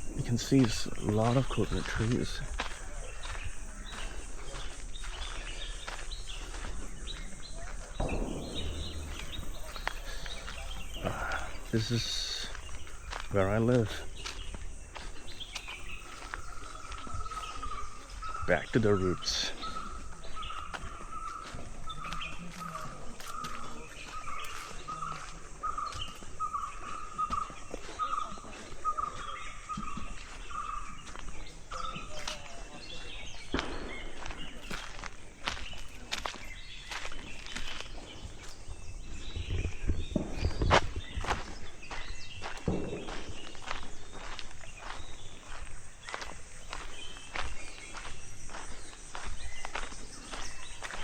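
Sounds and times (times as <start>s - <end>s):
birds chirping: 0.0s - 51.0s
outdoor background noise: 0.0s - 51.0s
soft footsteps: 0.0s - 51.0s
rush of noise: 8.0s - 12.0s.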